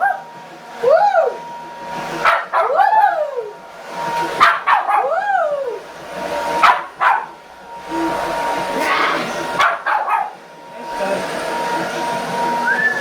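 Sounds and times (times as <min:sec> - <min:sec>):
dog barking and yowling: 0:00.0 - 0:01.4, 0:02.2 - 0:03.6, 0:04.4 - 0:05.9, 0:06.6 - 0:07.4, 0:08.8 - 0:10.4
hair dryer: 0:00.0 - 0:13.0.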